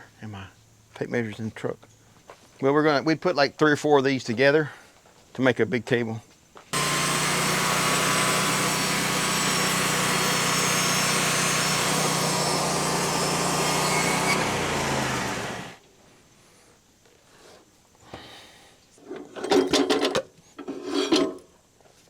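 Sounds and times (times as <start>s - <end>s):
bandsaw mill cutting a log: 6.8s - 15.8s.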